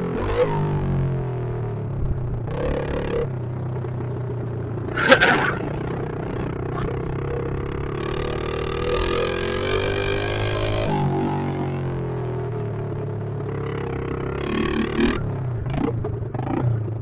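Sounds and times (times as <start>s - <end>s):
pit bike engines revving: 2.4s - 3.4s, 4.7s - 11.9s, 13.5s - 17.0s.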